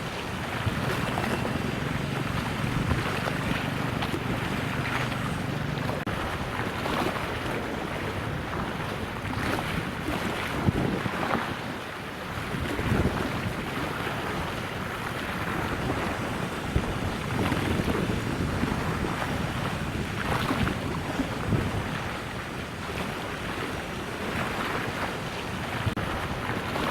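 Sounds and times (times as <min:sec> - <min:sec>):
water washing: 0:00.0 - 0:11.5
wind gusting across microphone: 0:00.0 - 0:26.9.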